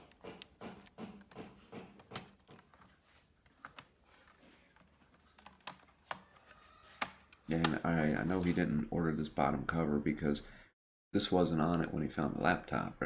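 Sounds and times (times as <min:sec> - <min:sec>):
small laptop parts clicking: 0:00.0 - 0:07.8.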